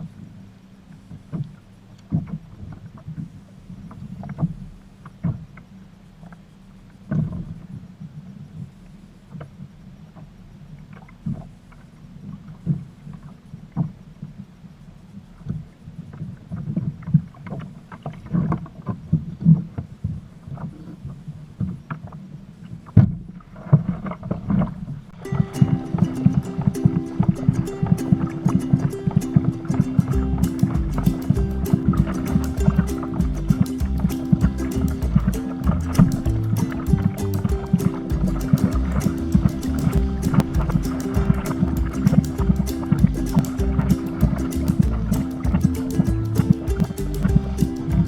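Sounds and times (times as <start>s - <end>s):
water sloshing: 25.2s - 48.0s.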